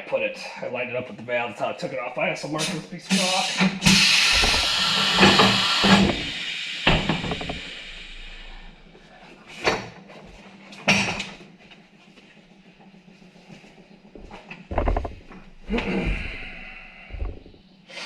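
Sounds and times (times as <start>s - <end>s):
loud air hiss: 2.7s - 8.9s
knocks and clanks of wheel: 3.6s - 17.6s.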